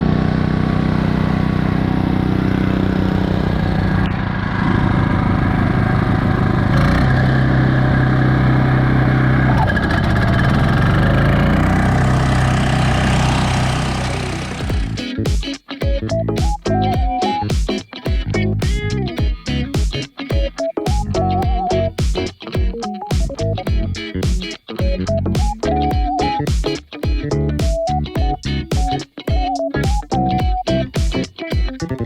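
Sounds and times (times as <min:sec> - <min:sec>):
grass cutter engine running: 0:00.0 - 0:15.1.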